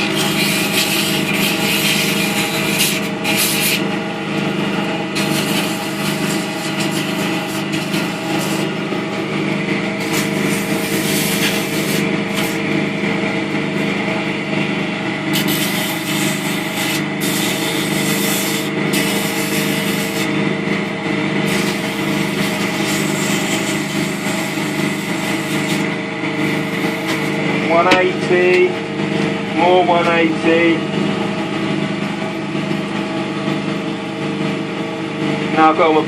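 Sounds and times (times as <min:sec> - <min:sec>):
wood lathe motor running: 0:00.0 - 0:36.0
sandpaper hissing on wood: 0:05.2 - 0:08.7, 0:15.4 - 0:20.3, 0:21.5 - 0:25.8, 0:26.5 - 0:27.4.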